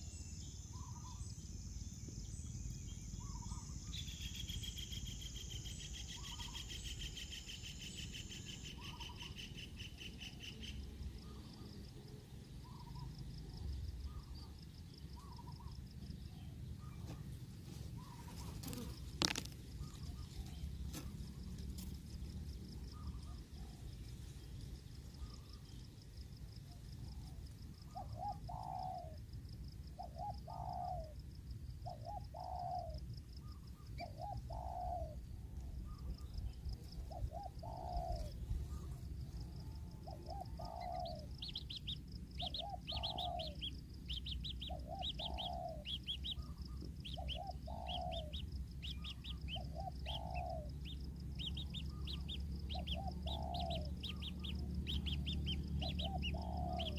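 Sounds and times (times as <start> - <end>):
small bird chirping: 0.0 - 31.2, 31.8 - 56.9
dove cooing: 6.2 - 6.6, 27.9 - 29.2, 30.0 - 31.2, 31.8 - 33.0, 34.0 - 35.2, 36.9 - 56.9.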